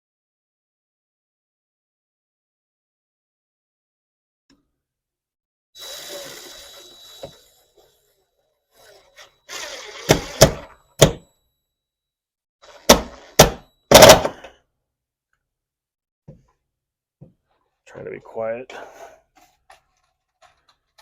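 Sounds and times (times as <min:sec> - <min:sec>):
scraping or whirring tool noise: 0:05.8 - 0:10.7.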